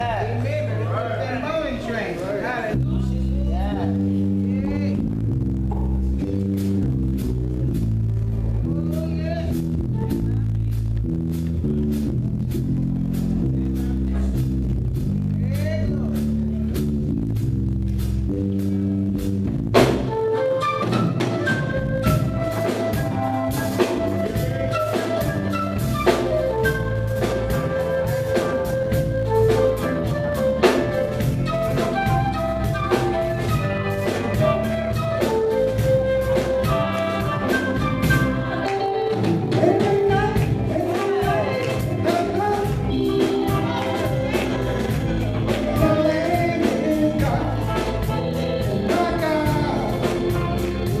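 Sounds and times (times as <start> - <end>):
gospel band music: 0.0 - 51.0
drum kit beat: 2.6 - 51.0.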